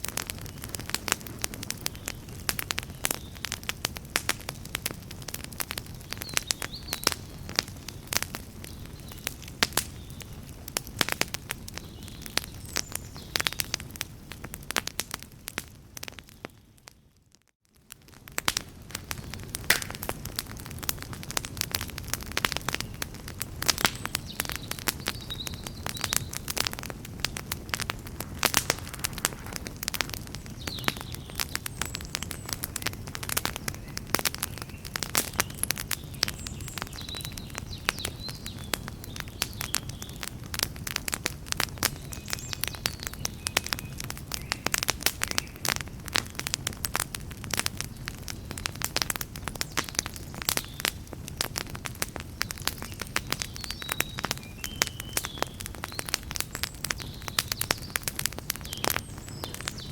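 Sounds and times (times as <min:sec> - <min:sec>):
burning wood crackling: 0:00.0 - 0:59.9
low rush of flame: 0:18.2 - 0:36.5.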